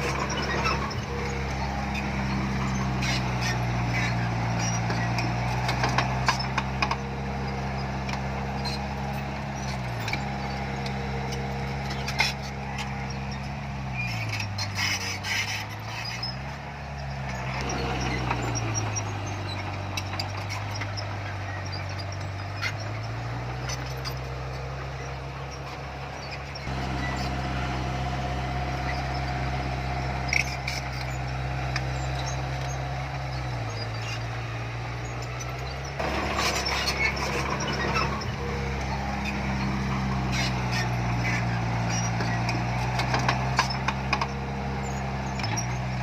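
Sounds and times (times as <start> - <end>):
diesel engine revving: 0.0 - 46.0.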